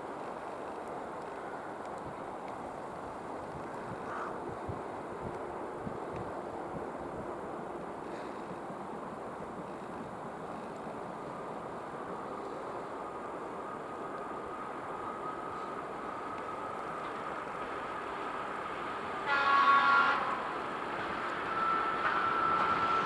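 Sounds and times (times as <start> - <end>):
train rumble: 0.0 - 23.0
train horn blast: 19.2 - 20.6.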